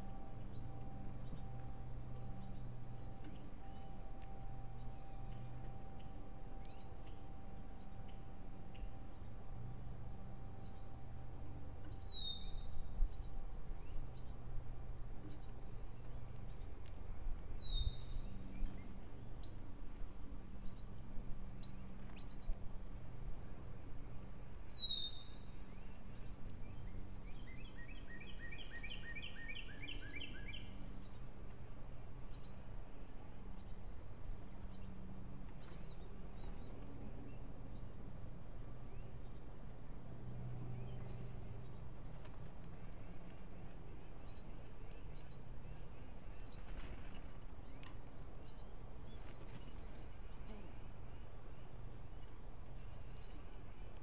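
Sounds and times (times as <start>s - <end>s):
bird trill: 0.0s - 11.2s, 11.8s - 14.5s, 17.5s - 19.6s, 24.6s - 31.4s
lower falling bird notes: 0.0s - 14.4s
songbird chirping: 0.0s - 14.6s, 15.2s - 22.6s, 23.5s - 54.0s
steady low hum: 0.0s - 54.0s.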